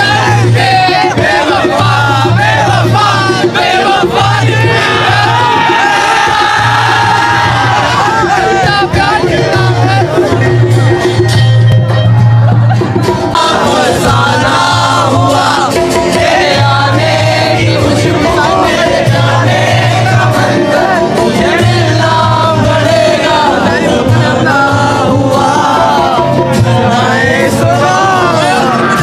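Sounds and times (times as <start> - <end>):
amplified musical accompaniment: 0.0 - 29.0
man singing: 7.4 - 10.6, 13.3 - 29.0.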